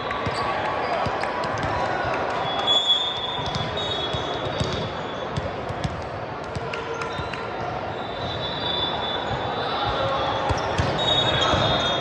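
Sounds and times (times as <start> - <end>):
hum of many voices: 0.0 - 12.0
sneaker squeaks: 2.4 - 6.0, 6.8 - 12.0.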